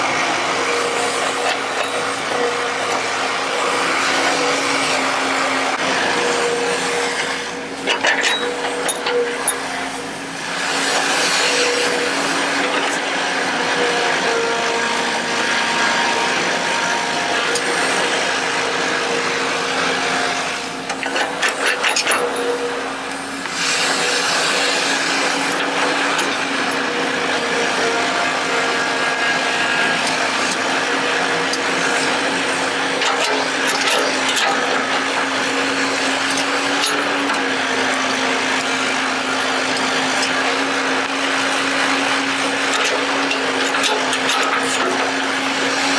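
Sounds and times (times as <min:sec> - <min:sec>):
hydraulic pump motor whining: 0:00.0 - 0:45.9.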